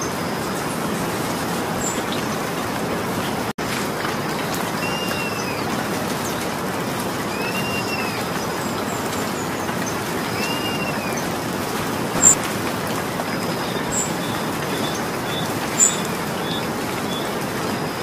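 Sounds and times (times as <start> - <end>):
steady rain: 0.0 - 18.0
bird calling: 4.8 - 5.7, 7.3 - 8.4, 10.2 - 11.4, 12.0 - 12.4, 13.2 - 17.3.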